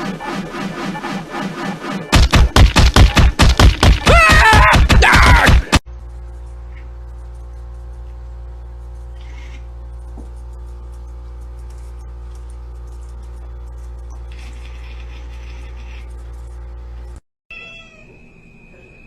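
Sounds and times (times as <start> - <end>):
low hum: 0.0 - 5.1, 5.8 - 17.2
cat meowing: 17.5 - 18.2.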